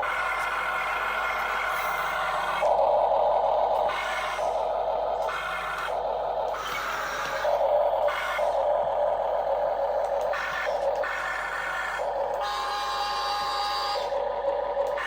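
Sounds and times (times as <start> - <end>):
small electric motors whirring: 5.2 - 8.6, 10.2 - 14.2.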